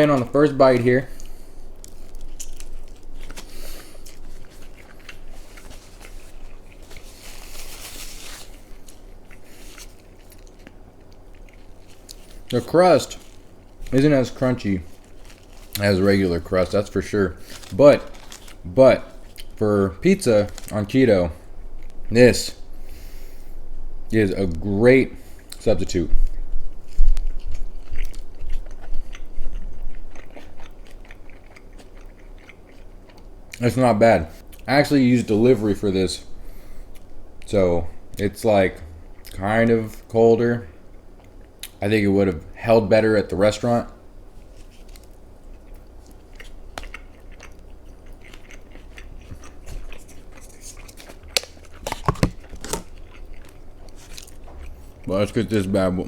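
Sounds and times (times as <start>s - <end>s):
chewing with wet smacks: 0.0s - 7.4s, 8.6s - 17.1s, 18.1s - 19.6s, 25.4s - 33.8s, 38.9s - 40.1s, 44.4s - 55.9s.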